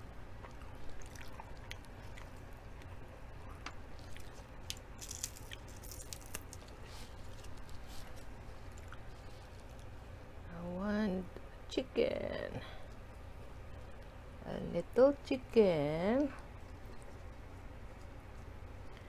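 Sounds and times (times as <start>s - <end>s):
lettuce crunching: 0.4s - 2.9s, 3.6s - 9.9s
chewing with wet clicks: 0.4s - 10.0s.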